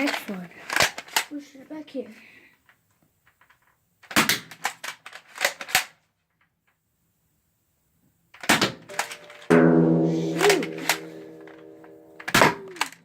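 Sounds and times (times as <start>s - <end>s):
toy blaster clicks and pops: 0.0s - 1.3s, 3.4s - 6.0s.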